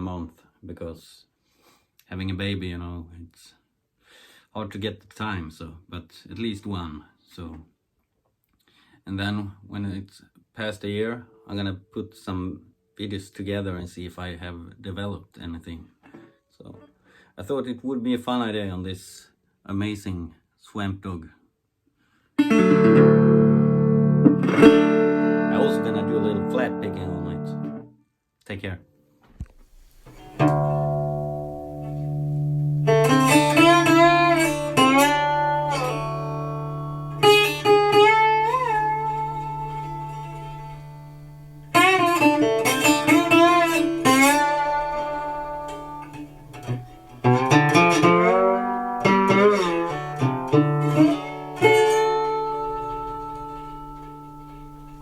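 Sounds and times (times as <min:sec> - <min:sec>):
slide resonator guitar blues: 0:22.4 - 0:27.9, 0:29.7 - 0:55.0.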